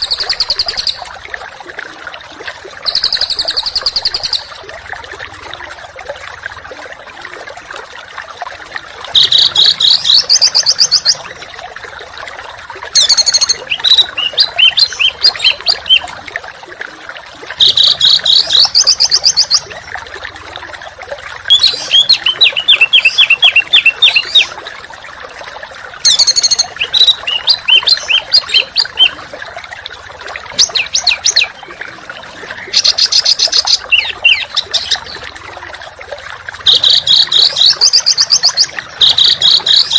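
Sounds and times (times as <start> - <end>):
songbird singing: 0.0 - 1.0, 2.9 - 4.6, 9.2 - 11.3, 13.0 - 16.1, 21.5 - 24.5, 26.1 - 29.2, 30.5 - 31.6, 32.6 - 35.2, 36.7 - 39.9.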